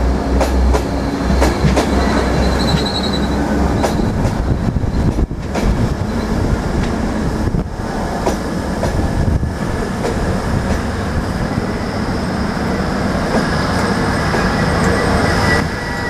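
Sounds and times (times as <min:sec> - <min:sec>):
train wheels rumbling on rail: 0:00.0 - 0:16.0
faint high-pitched squeal: 0:11.4 - 0:16.0.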